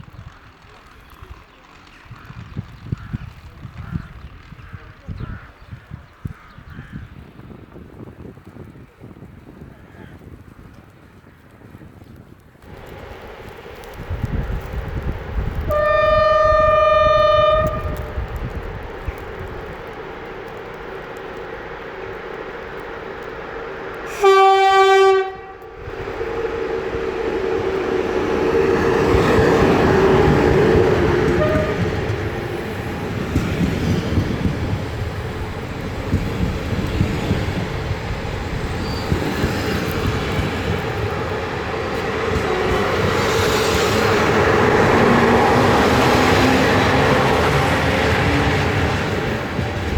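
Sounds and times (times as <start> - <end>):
train wheels rumbling and clattering: 0.0 - 49.9
locomotive horn: 15.7 - 18.6, 24.0 - 25.9, 27.0 - 32.5.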